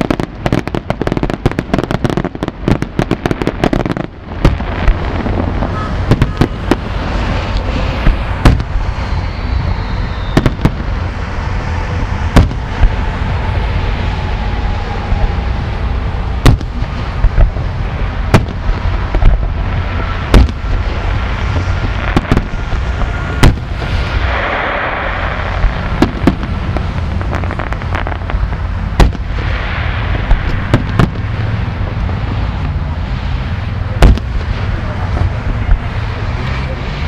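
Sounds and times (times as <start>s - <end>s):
fireworks crackling: 0.0s - 37.0s
steady low rumble: 0.0s - 37.0s.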